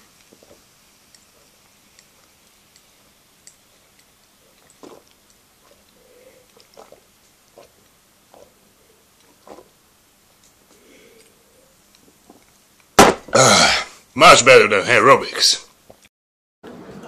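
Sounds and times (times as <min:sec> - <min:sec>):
man gulping beer: 0:04.5 - 0:09.8, 0:13.2 - 0:13.9.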